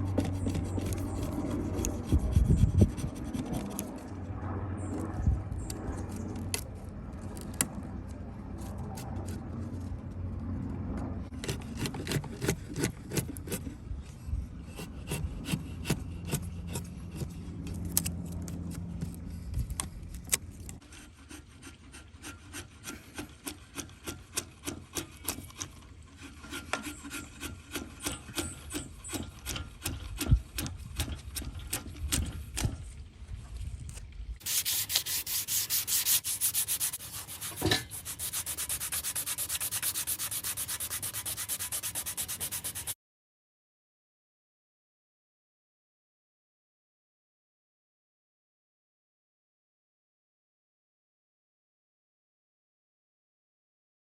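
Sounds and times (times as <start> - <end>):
rasp scraping wood: 0.0 - 4.0, 11.3 - 13.8, 14.6 - 32.7, 34.4 - 43.0.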